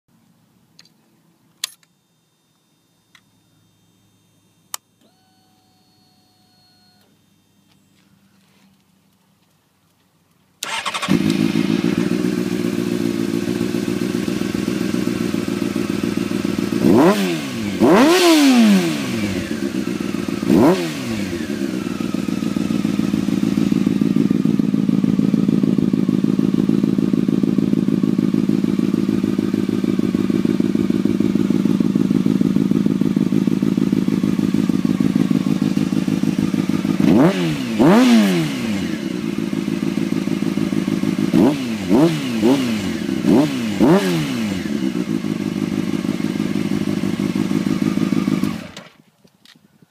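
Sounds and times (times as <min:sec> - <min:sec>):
engine throttle blips: 0:10.6 - 0:48.9
motorcycle engine idling: 0:10.6 - 0:48.9.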